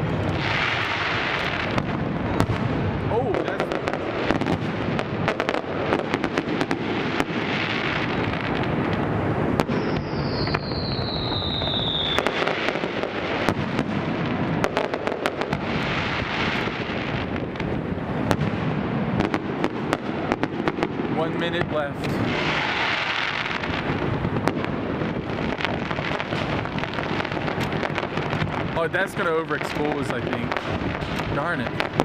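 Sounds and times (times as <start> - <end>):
firework bangs and crackling: 0.0 - 32.0
long falling whistle: 9.8 - 12.4.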